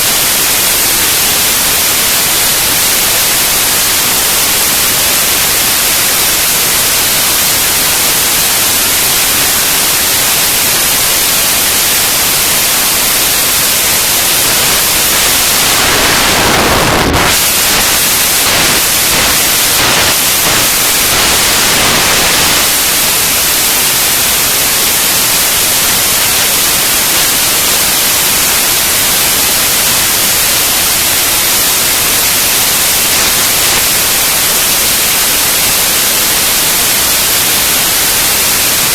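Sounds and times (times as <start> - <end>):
static hiss: 0.0 - 38.9.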